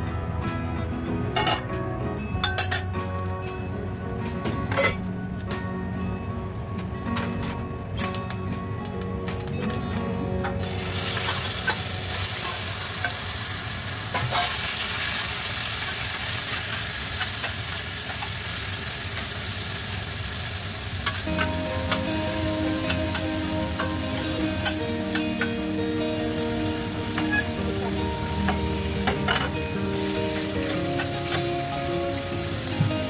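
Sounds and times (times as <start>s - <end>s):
chicken sizzling in hot oil: 10.6s - 33.0s.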